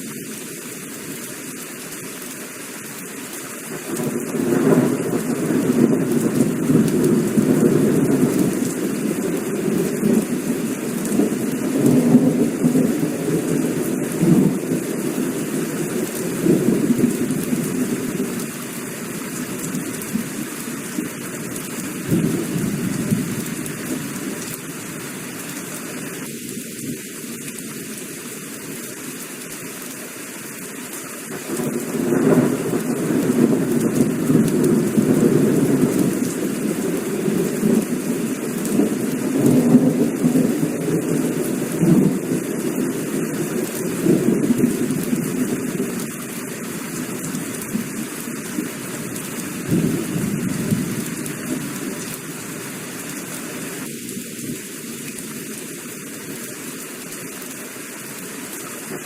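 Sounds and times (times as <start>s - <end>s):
heavy rain falling: 0.0s - 59.0s
thunder rumbling: 3.8s - 24.4s, 31.3s - 46.1s, 46.9s - 52.2s.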